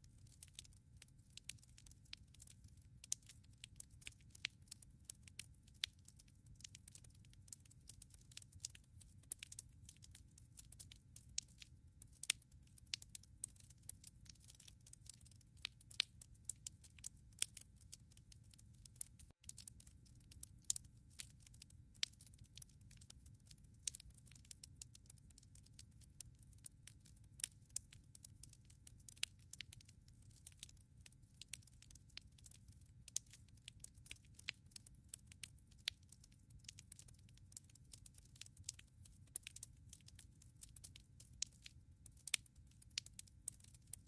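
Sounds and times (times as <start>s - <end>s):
firewood crackling in fireplace: 0.0s - 44.0s.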